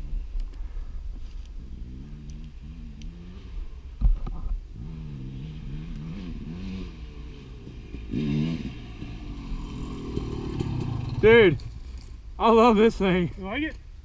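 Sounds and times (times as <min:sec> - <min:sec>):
dirt bike engine revving: 0:01.7 - 0:03.9, 0:04.8 - 0:11.8.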